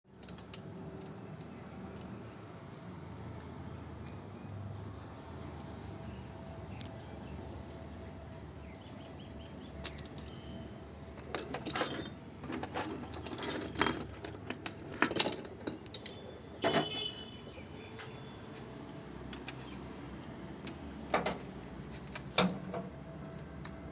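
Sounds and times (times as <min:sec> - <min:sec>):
small metal tools clinking: 0:09.8 - 0:17.1.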